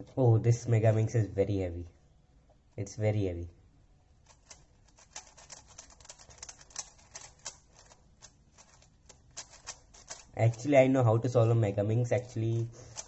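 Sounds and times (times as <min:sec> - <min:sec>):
plastic puzzle pieces clicking: 0:04.3 - 0:10.7, 0:12.2 - 0:13.0.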